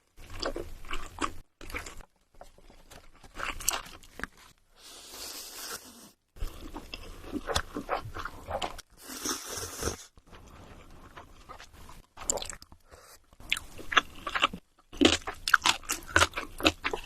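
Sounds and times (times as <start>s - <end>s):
crunchy bites and chewing: 13.4s - 17.0s.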